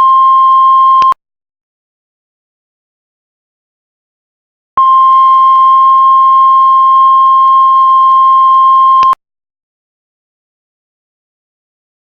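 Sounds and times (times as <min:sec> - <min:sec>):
heart monitor flatline tone: 0:00.0 - 0:01.2, 0:04.8 - 0:09.2.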